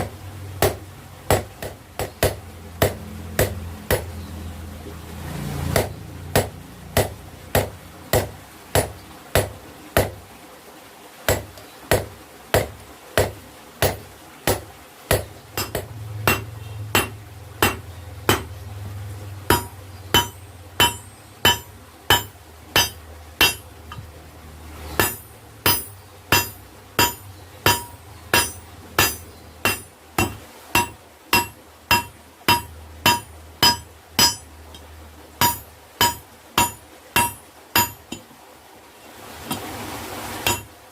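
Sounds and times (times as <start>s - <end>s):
hammer striking steel on anvil: 13.8s - 18.5s, 19.5s - 24.0s, 25.0s - 34.8s, 35.4s - 38.2s, 40.4s - 40.7s.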